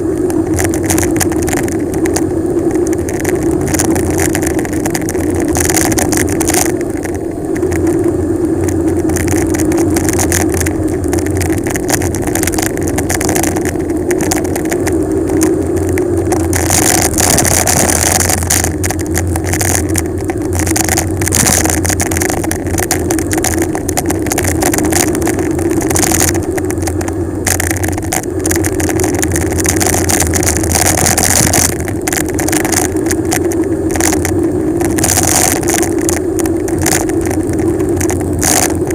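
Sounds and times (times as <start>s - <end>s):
bicycle tyre hum: 0.0s - 38.9s
wind buffeting microphone: 0.0s - 38.9s.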